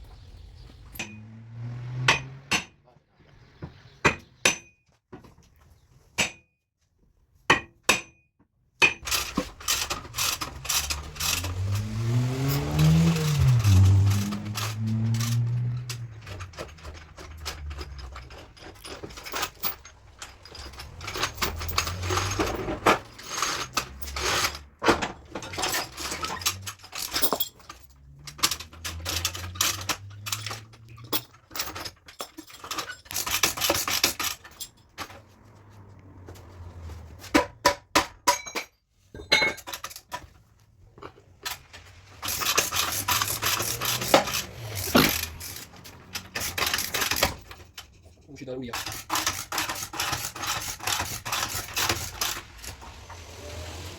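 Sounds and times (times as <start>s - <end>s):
scraping and rubbing on metal: 9.2s - 24.7s, 41.4s - 53.9s.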